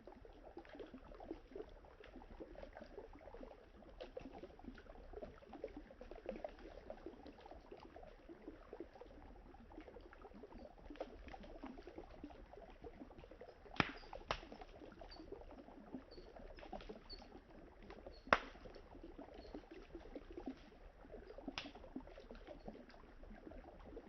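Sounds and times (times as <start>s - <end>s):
campfire crackling: 13.7s - 14.7s, 17.9s - 18.7s, 21.4s - 21.8s
fire popping: 13.7s - 14.8s, 17.9s - 18.8s, 21.4s - 21.8s.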